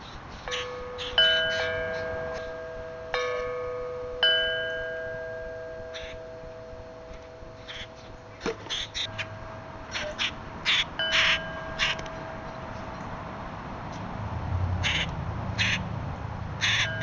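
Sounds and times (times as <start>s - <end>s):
wind chime ringing: 0.0s - 13.9s, 16.8s - 17.0s.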